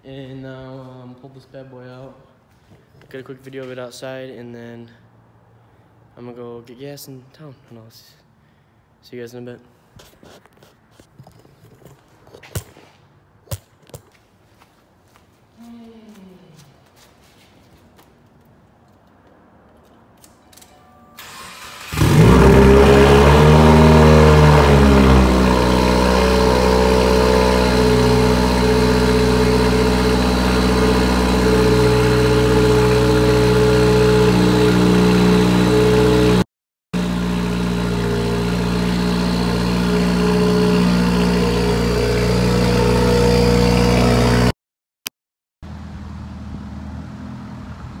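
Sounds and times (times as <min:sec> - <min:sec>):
car engine starting and idling: 0:21.2 - 0:36.4, 0:37.0 - 0:44.5.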